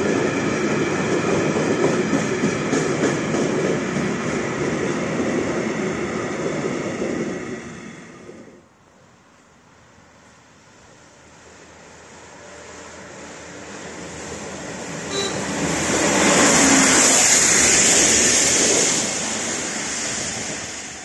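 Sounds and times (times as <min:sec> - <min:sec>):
train wheels rumbling on rails: 0:00.0 - 0:08.6, 0:11.4 - 0:21.0.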